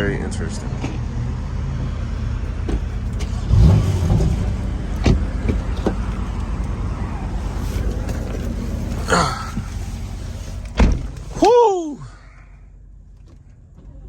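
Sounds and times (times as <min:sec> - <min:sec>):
car engine running: 0:00.5 - 0:11.4.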